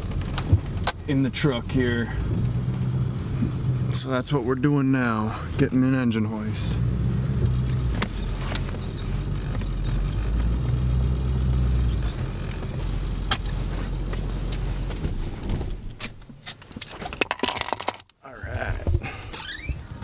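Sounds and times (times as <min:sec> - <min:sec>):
sharp clicks and rattles: 0:00.0 - 0:01.2, 0:11.9 - 0:18.6.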